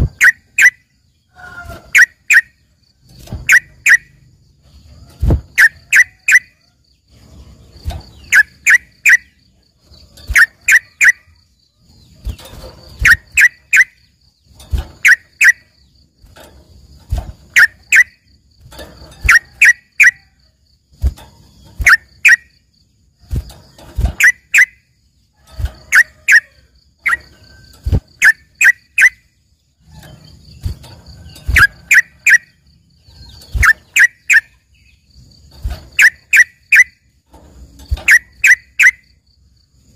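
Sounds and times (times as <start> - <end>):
bulbul singing sharp notes: 0.0 - 1.0, 1.8 - 2.8, 3.4 - 4.3, 7.9 - 9.4, 10.3 - 11.5, 13.0 - 14.2, 24.0 - 25.0, 31.4 - 35.0.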